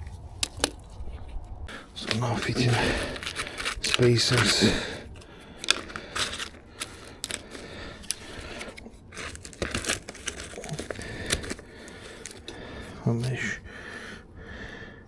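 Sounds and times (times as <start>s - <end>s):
plastic spacers clicking: 0.4s - 0.9s, 2.0s - 12.8s
plastic crinkling: 1.7s - 13.4s.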